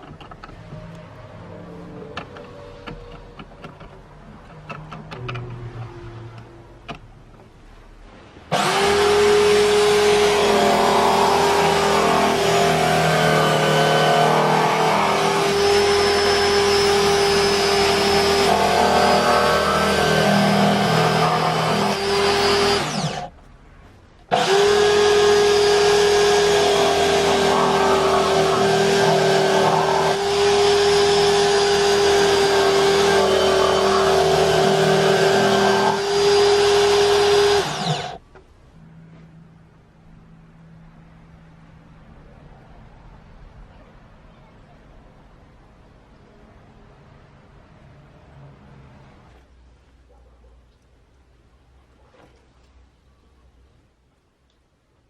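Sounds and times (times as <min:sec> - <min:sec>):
electric drill motor whining: 0:08.5 - 0:23.3, 0:24.3 - 0:38.2.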